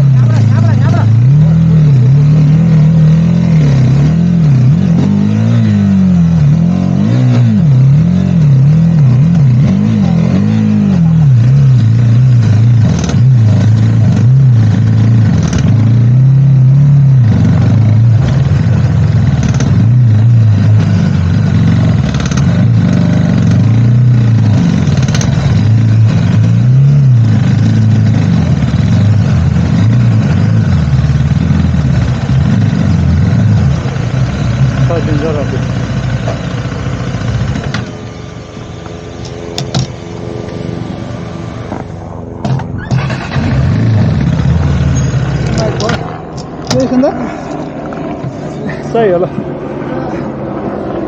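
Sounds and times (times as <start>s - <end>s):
motorcycle engine revving: 0.0s - 51.0s
sharp knocks and rattles: 12.1s - 16.0s, 17.4s - 21.1s, 21.7s - 26.6s.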